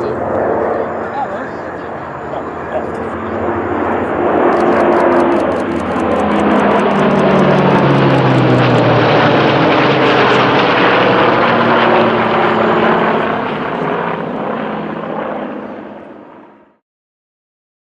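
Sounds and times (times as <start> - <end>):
propeller aircraft engine drone: 0.0 - 16.8.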